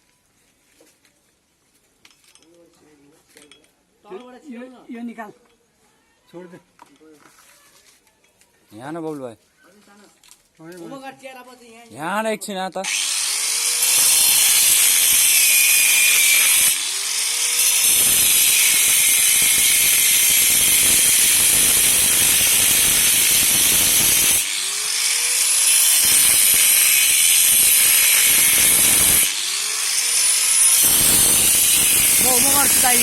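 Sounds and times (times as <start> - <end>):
power tool grinding under load: 12.8 - 33.0.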